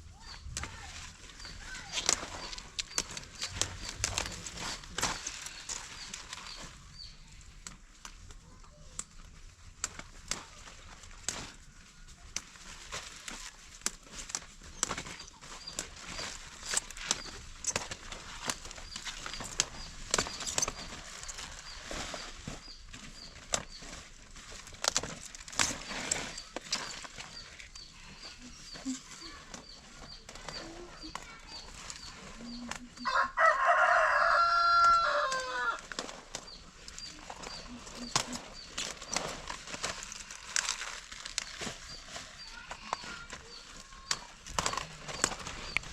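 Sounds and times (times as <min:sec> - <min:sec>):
rustling: 0:00.0 - 0:45.9
rooster crowing: 0:33.0 - 0:35.8.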